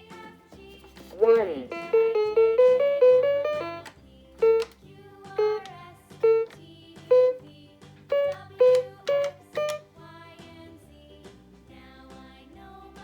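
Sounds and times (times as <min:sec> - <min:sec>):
toy playing synthesized tune: 0:01.2 - 0:07.5, 0:08.1 - 0:09.9.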